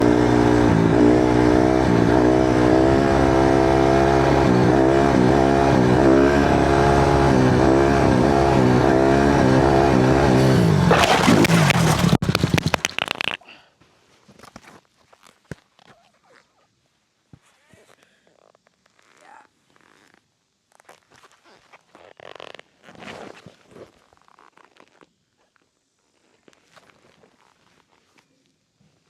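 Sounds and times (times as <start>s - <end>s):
dirt bike engine revving: 0.0s - 13.1s
bike scraping and clattering: 10.4s - 13.4s.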